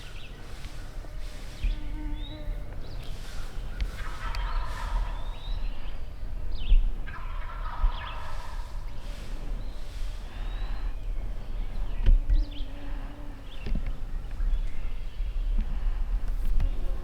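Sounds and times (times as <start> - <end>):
wild turkeys gobbling: 2.9 - 6.2, 7.0 - 10.4.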